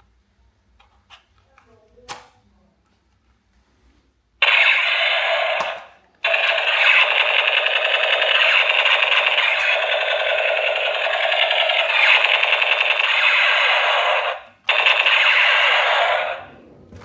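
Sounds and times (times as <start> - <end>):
toy speaker buzzing rattle: 4.4 - 16.5.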